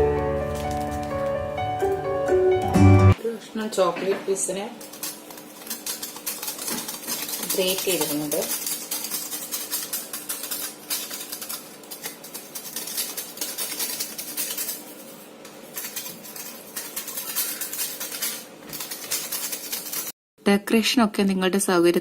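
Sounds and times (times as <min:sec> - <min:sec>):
chocolate scraping on grater: 0:04.8 - 0:20.2.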